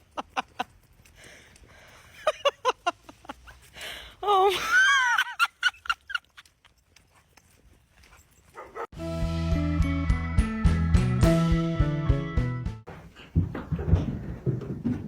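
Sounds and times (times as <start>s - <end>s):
music with a steady beat: 9.0s - 12.8s.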